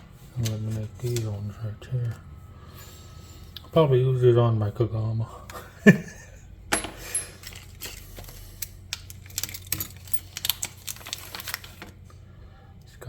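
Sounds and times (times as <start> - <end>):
small parts clinking together: 6.7 - 11.6.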